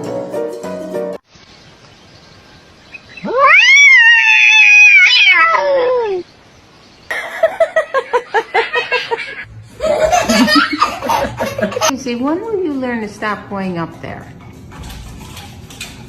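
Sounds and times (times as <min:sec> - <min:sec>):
cat yowling: 0:03.2 - 0:06.2.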